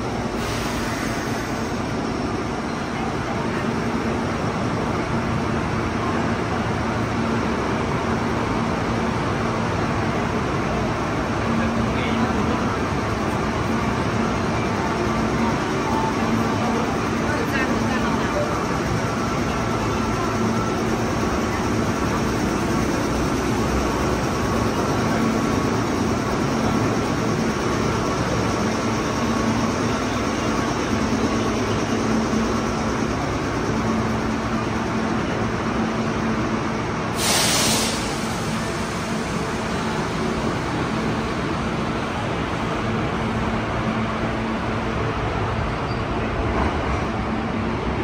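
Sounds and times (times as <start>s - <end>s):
electric train humming: 0.0s - 48.0s
hissing air burst: 37.1s - 39.0s.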